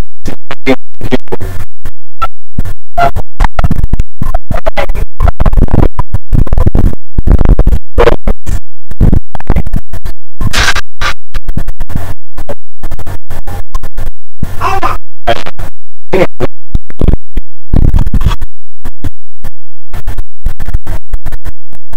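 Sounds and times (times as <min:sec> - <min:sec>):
distorted garbled audio: 0:00.0 - 0:21.9.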